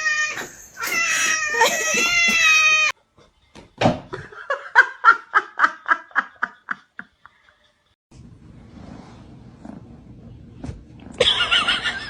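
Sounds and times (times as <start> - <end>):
cat yowling: 0.0 - 2.9.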